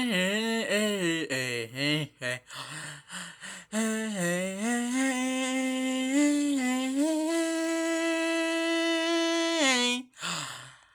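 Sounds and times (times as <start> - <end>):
person humming held notes: 3.8 - 10.4.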